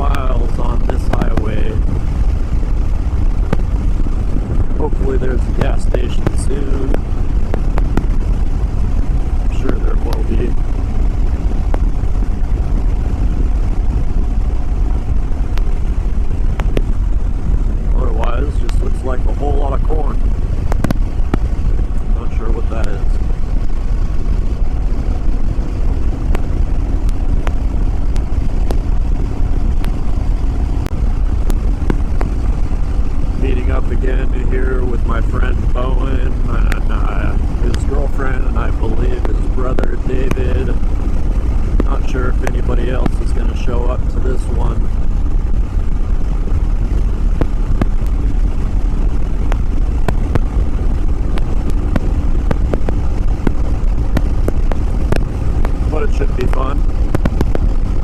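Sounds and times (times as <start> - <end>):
motorcycle engine cruising: 0.0 - 58.0
wind buffeting microphone: 0.0 - 58.0
sharp clicks: 16.5 - 17.0.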